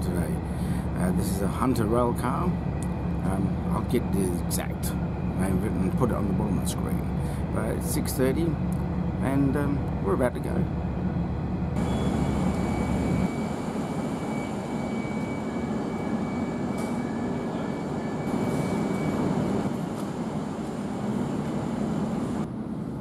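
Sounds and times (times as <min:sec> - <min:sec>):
train rumble: 0:00.0 - 0:23.0.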